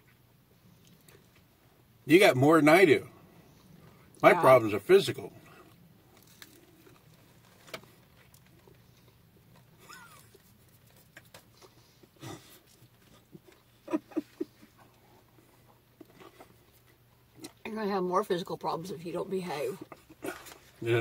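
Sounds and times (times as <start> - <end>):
chewing and mouth smacks: 0.0 - 1.5, 5.6 - 13.7
low steady hum: 0.0 - 21.0.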